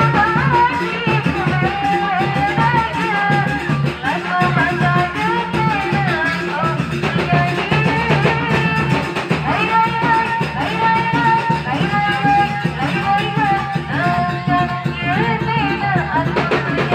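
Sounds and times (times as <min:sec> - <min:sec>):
drums: 0:00.0 - 0:16.9.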